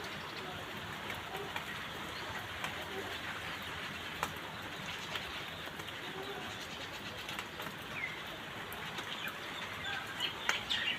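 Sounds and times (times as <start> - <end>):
faint bird calls: 0.0 - 8.3
background hiss: 0.0 - 10.9.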